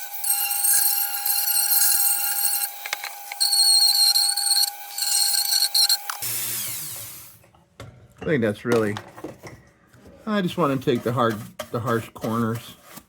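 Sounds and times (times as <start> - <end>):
rotary tool grinding metal: 0.0 - 7.2.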